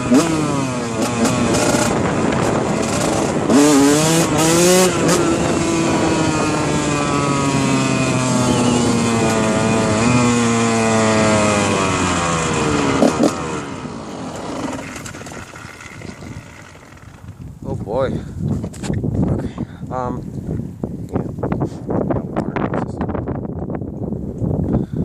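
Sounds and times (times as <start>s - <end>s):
dirt bike engine revving: 0.0s - 17.4s.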